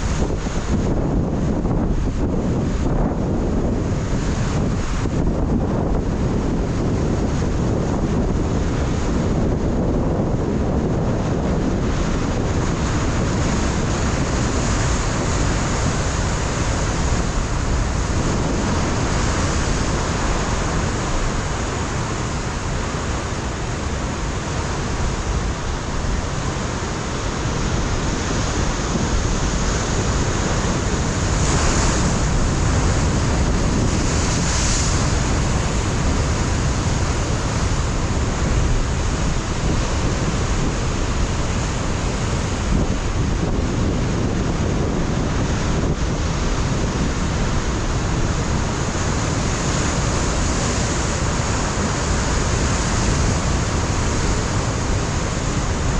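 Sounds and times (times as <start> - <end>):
wind buffeting microphone: 0.0 - 55.9
surf breaking on rocks: 11.5 - 55.9.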